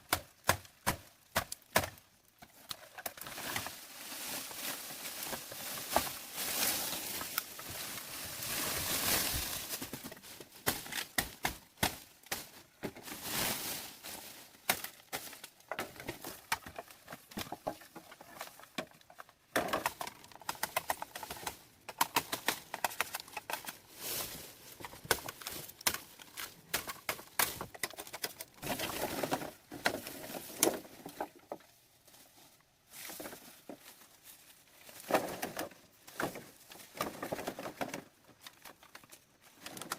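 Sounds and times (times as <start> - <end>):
taps clicks and rustling: 14.7 - 23.8.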